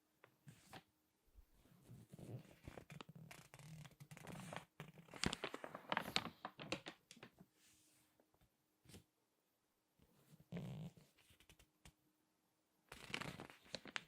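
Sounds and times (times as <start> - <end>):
magazine pages crackling: 2.3 - 7.4, 12.9 - 14.0.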